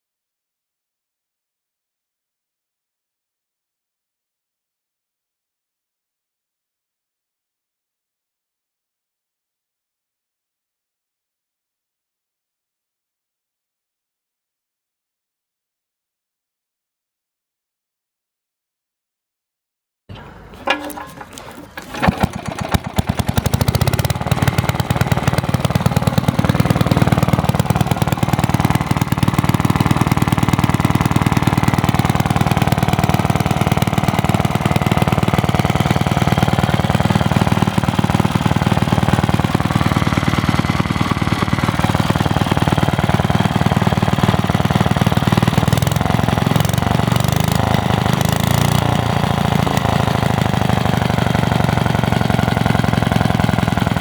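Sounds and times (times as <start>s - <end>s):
two-stroke stationary engine running: 20.6s - 54.0s.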